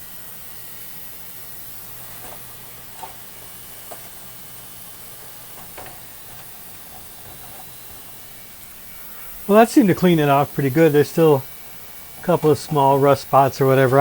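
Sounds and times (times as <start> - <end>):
steady hiss: 0.0 - 14.0
light clicks and scrapes on metal: 5.2 - 8.8.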